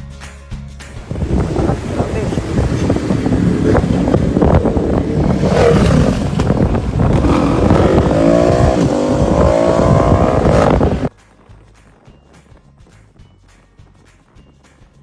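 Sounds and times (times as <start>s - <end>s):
rumbling wind noise: 0.9s - 11.1s
scooter engine accelerating: 1.0s - 11.1s.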